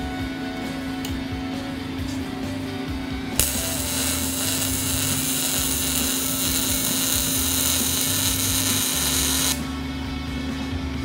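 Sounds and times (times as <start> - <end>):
welding arc sizzling: 3.4 - 9.7.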